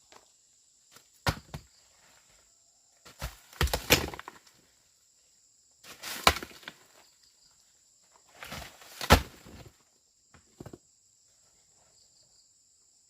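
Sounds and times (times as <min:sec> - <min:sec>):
sharp chopping strikes: 0:09.0 - 0:09.4.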